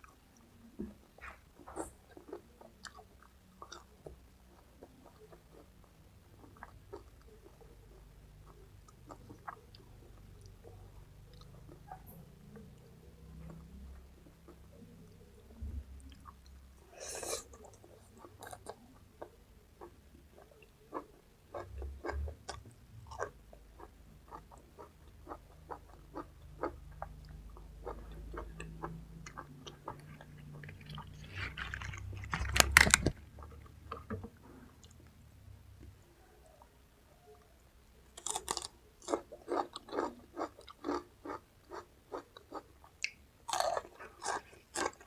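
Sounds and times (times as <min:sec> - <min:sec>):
crunching raw vegetables: 0:24.3 - 0:34.1, 0:38.2 - 0:45.0.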